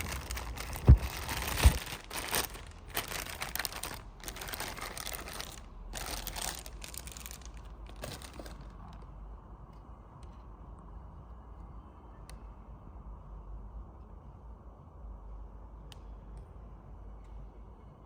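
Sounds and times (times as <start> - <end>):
rustling crinkling handling noise: 0.0 - 9.0.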